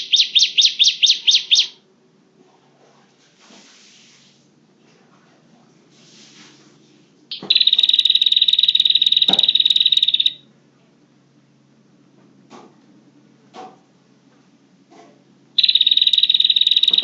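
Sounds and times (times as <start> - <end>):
bird buzzy trill: 0.0 - 1.8, 7.3 - 10.4, 15.6 - 17.0.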